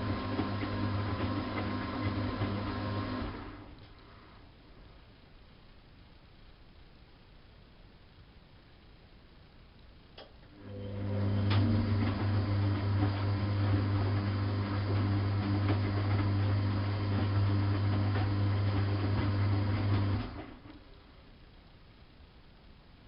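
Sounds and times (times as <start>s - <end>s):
washing machine drum humming: 0.0s - 3.7s, 10.6s - 20.8s.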